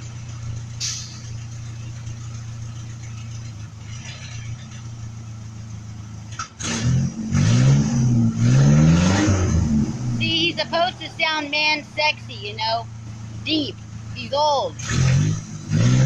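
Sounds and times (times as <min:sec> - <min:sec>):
truck engine idling and revving: 0:00.0 - 0:16.0.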